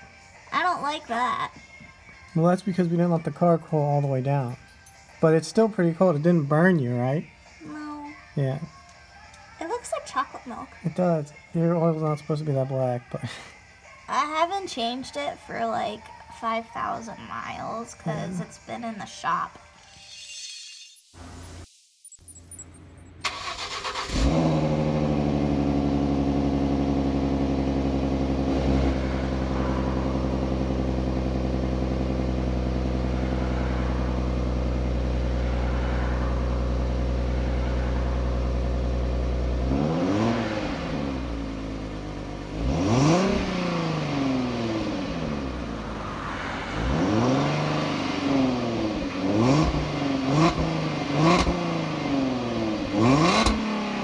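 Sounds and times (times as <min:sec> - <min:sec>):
car engine starting: 0:22.6 - 0:54.0
car engine idling: 0:23.2 - 0:54.0
car engine revving: 0:23.2 - 0:54.0.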